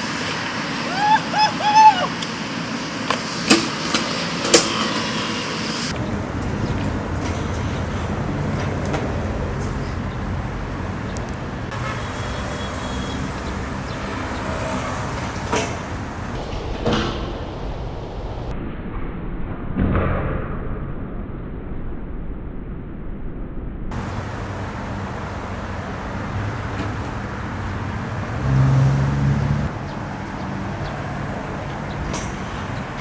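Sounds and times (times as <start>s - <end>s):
city street traffic: 0.0s - 16.4s, 23.9s - 33.0s.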